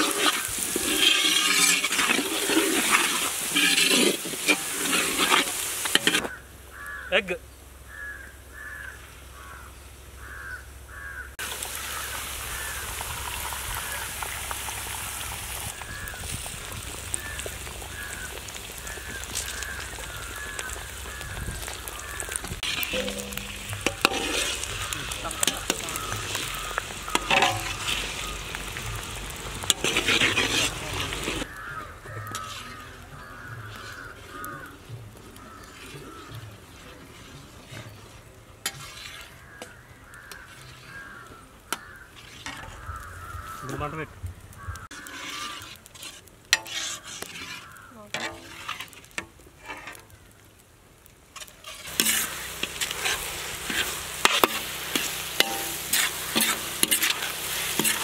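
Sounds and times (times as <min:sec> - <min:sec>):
metal spatula scraping pan: 0:00.0 - 0:06.4, 0:21.6 - 0:43.8, 0:44.8 - 0:50.1, 0:51.4 - 0:58.0
eggs frying in hot oil: 0:00.0 - 0:07.1, 0:07.9 - 0:58.0.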